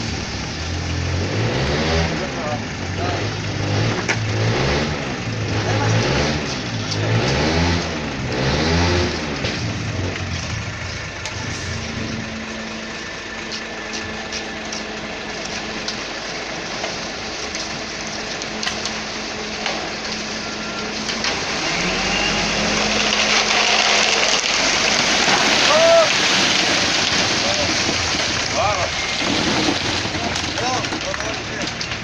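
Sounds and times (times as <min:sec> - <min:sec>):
truck engine running: 0:00.0 - 0:32.0.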